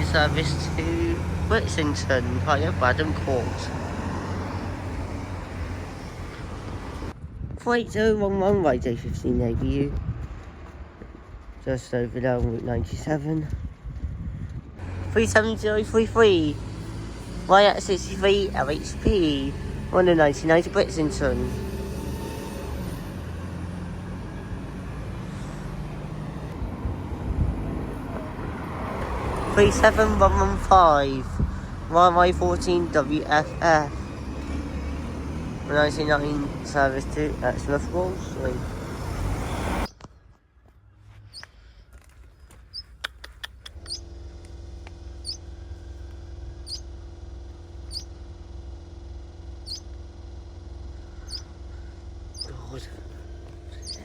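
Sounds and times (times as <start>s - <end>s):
diesel engine drone: 0.0s - 13.6s, 14.5s - 54.0s
street traffic: 0.0s - 54.0s
small bird cheeping: 41.3s - 41.6s, 42.7s - 44.1s, 45.2s - 45.5s, 46.6s - 46.9s, 47.8s - 48.2s, 49.6s - 49.9s, 51.2s - 51.6s, 52.3s - 52.8s, 53.6s - 54.0s
steady low hum: 43.7s - 54.0s.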